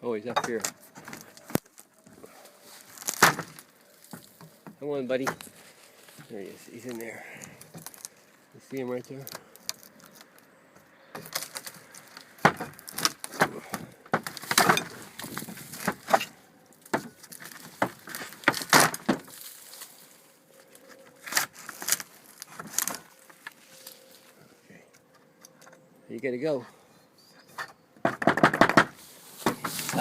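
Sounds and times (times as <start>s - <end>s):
objects clattering being handled: 11.1s - 19.9s, 27.5s - 30.0s.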